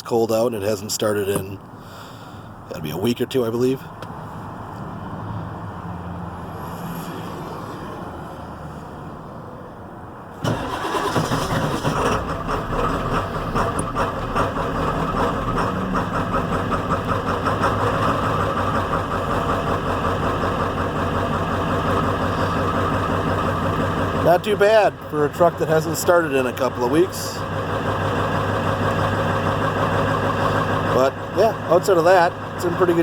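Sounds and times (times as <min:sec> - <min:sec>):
diesel engine starting and idling: 0:10.2 - 0:33.0.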